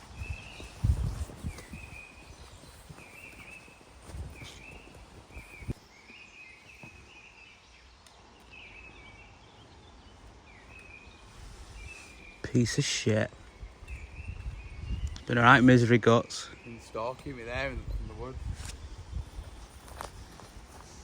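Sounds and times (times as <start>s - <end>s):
low thuds and rustles: 0.0s - 5.8s
bird chirping: 0.0s - 21.0s.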